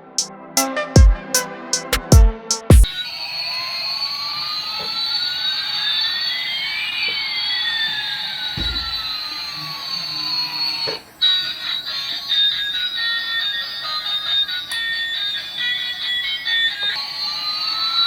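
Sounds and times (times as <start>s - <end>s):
heavy electronic drum hits: 1.0s - 1.2s, 1.8s - 2.9s
rising and falling whistles: 2.9s - 18.0s
low thud: 8.6s - 9.0s.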